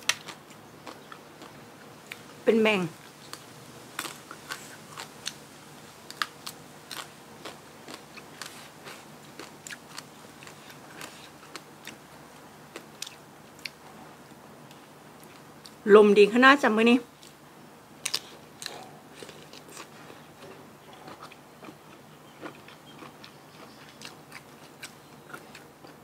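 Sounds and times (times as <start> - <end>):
person chewing crunchy food: 0.0 - 2.3, 3.1 - 5.4, 6.0 - 12.0, 12.7 - 13.8, 18.0 - 26.0.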